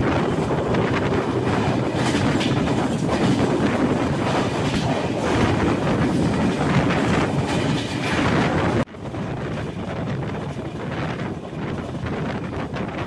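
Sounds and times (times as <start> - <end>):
wheels clicking over rail joints: 0.0 - 8.9
train wheels rumbling on rails: 0.0 - 13.0.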